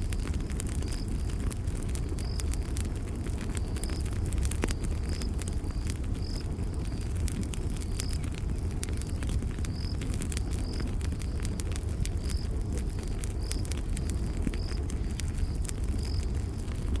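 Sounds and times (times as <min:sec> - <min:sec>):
campfire crackling: 0:00.0 - 0:17.0
cricket chirping: 0:14.5 - 0:16.3.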